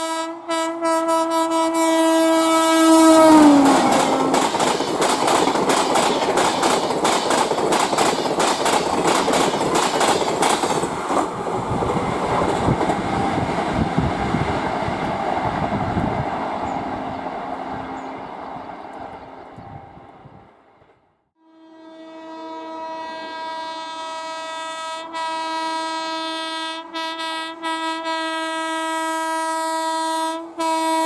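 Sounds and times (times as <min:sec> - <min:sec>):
train coaches rumbling: 0:02.2 - 0:20.9
train wheels clickety-clack: 0:03.3 - 0:16.2.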